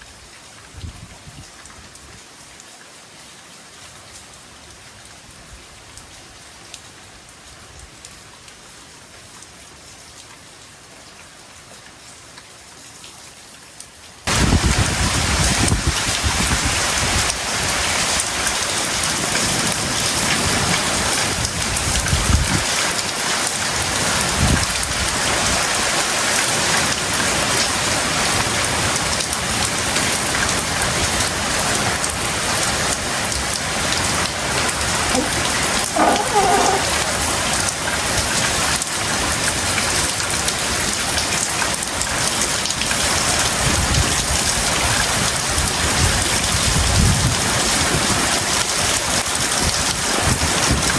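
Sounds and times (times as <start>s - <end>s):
heavy rain pouring: 13.4s - 50.9s.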